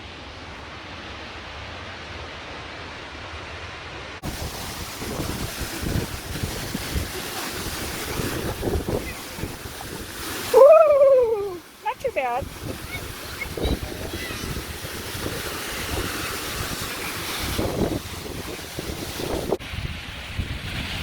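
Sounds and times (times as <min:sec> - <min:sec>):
waterfall roaring: 0:00.0 - 0:21.0
wind gusting on microphone: 0:04.2 - 0:21.0.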